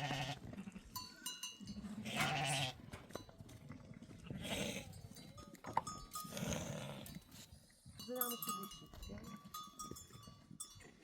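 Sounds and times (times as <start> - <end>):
livestock bleating: 0.0 - 0.4, 2.0 - 2.8
small animal bells clinking: 0.8 - 3.6, 4.4 - 11.0.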